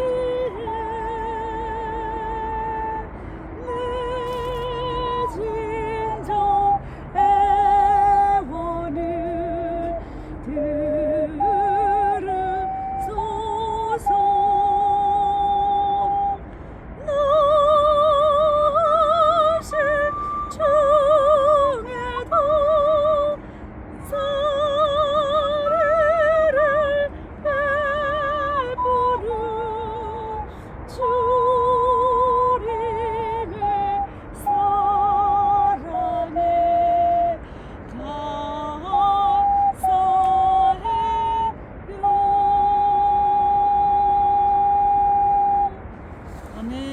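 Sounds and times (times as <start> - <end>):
ocarina playing slow melody: 3.6 - 16.4, 18.3 - 23.2.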